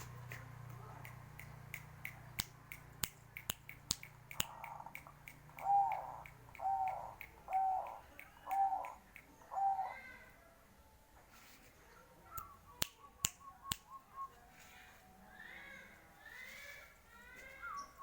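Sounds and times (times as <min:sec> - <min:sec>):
sharp clicks: 0:00.0 - 0:09.4
dove cooing: 0:04.5 - 0:10.2.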